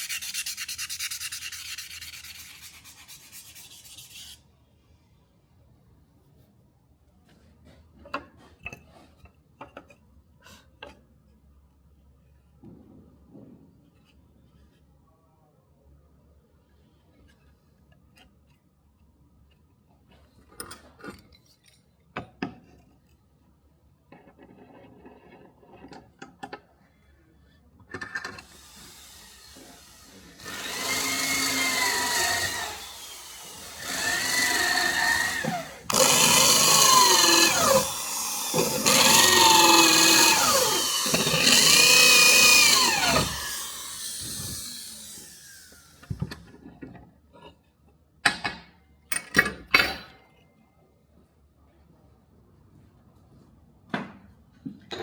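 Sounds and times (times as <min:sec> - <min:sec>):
electric power tool whining: 0:28.4 - 0:46.1.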